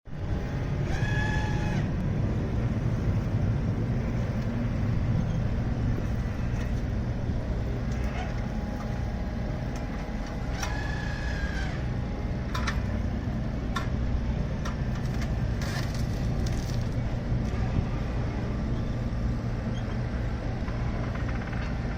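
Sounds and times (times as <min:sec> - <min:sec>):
heavy machinery engine drone: 0:00.0 - 0:21.9.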